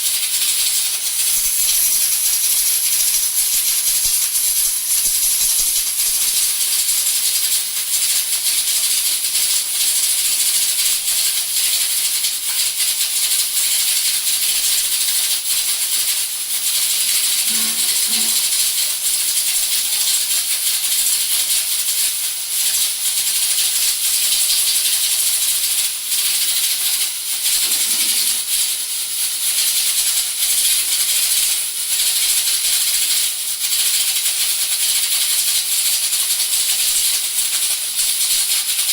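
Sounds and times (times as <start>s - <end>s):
pressure cooker steam hissing: 0.0s - 38.9s
whistle weights rattling: 1.2s - 6.1s, 17.3s - 18.9s
pressure cooker whistle: 1.2s - 6.5s, 17.0s - 19.4s, 27.5s - 28.6s.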